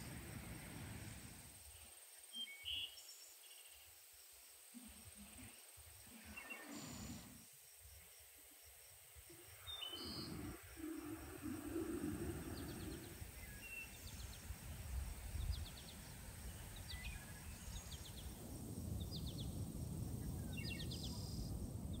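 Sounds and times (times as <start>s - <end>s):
bird chirping: 9.3s - 18.4s.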